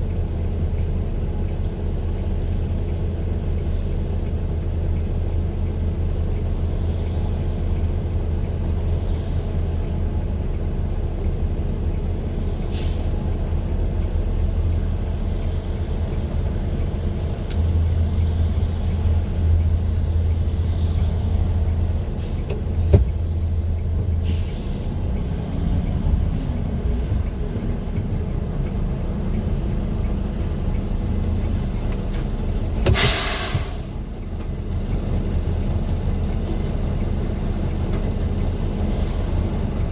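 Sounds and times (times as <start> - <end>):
vehicle engine low drone: 0.0 - 39.9
short hisses: 32.9 - 34.0.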